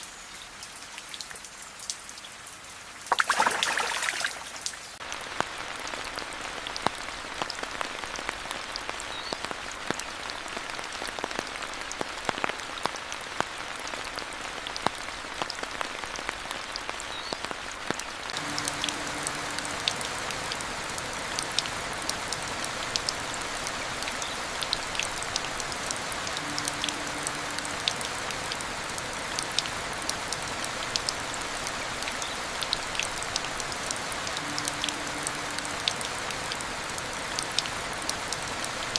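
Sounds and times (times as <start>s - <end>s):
rain drops pattering: 0.0s - 38.9s.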